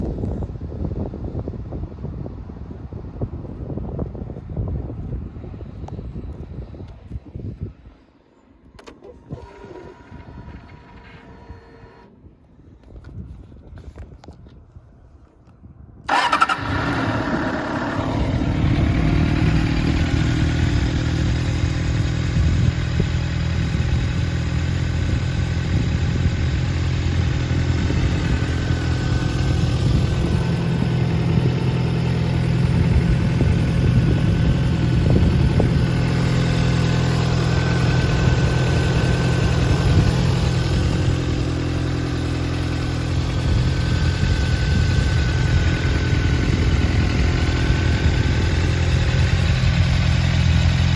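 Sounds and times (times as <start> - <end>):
motorcycle engine starting and idling: 8.7 - 12.4, 16.1 - 50.9.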